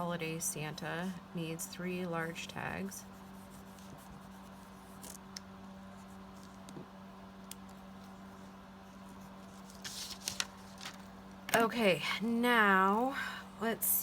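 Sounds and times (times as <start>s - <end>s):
paper rustling: 9.0s - 11.2s.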